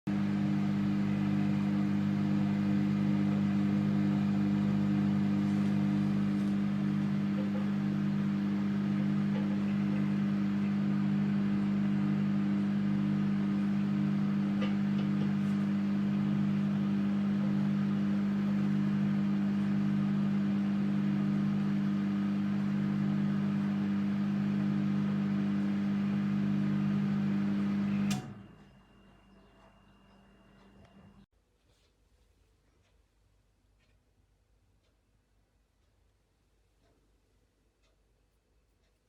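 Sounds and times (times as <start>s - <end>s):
microwave stopping click: 0.1s - 31.2s
microwave oven humming: 0.1s - 31.3s.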